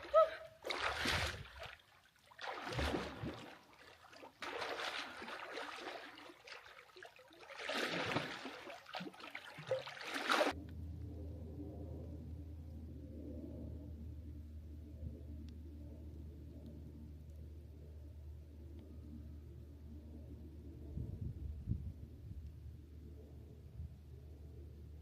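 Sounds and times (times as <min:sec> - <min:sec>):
water splashing from swimming: 0:00.0 - 0:10.6
low steady hum: 0:00.0 - 0:25.0.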